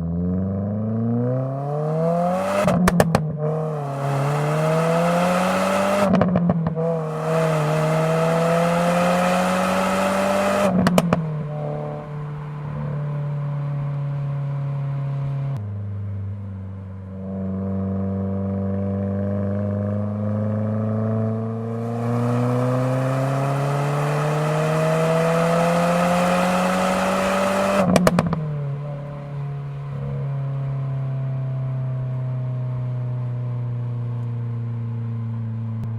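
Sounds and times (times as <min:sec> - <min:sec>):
car engine accelerating: 0:00.0 - 0:35.9
exhaust pops: 0:02.7 - 0:03.4, 0:10.7 - 0:11.6, 0:27.9 - 0:28.5.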